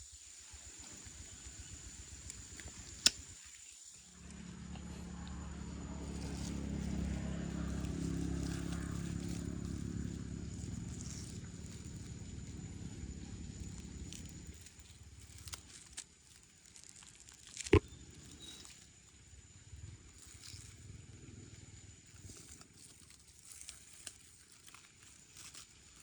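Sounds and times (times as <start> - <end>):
motor humming: 4.2 - 15.8.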